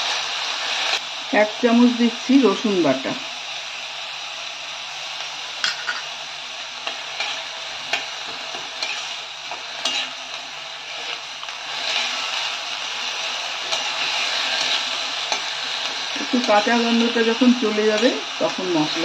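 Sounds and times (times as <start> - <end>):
onions sizzling in oil: 0.0 - 19.0
steel spatula scraping pan: 7.2 - 10.2, 10.8 - 12.5.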